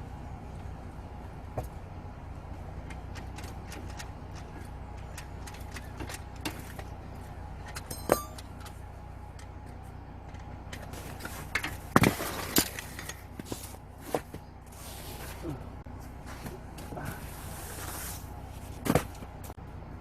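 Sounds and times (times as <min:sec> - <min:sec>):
steady low hum: 0:00.0 - 0:20.0
metallic clink: 0:07.7 - 0:08.7.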